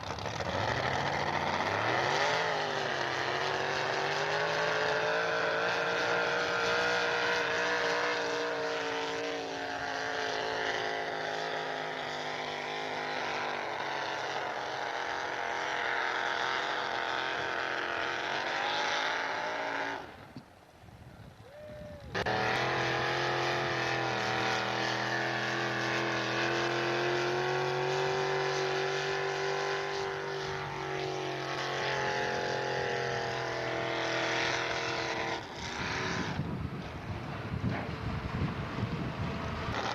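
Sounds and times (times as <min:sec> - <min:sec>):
truck engine running at high revs: 0:00.0 - 0:20.5, 0:21.7 - 0:39.9.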